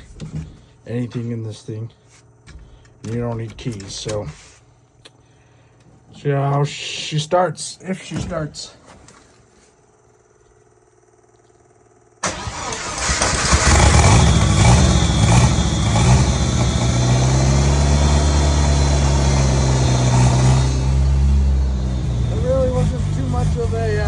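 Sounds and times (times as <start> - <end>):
engine cranking and idling: 12.2 - 24.0.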